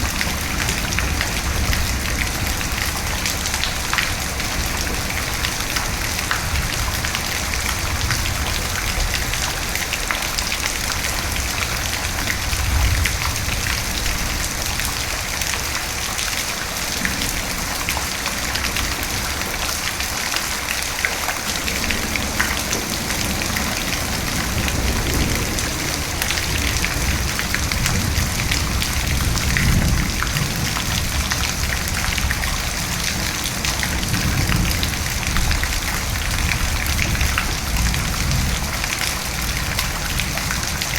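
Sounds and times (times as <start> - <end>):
heavy rain falling: 0.0 - 40.9
thunder rumbling: 16.9 - 40.9.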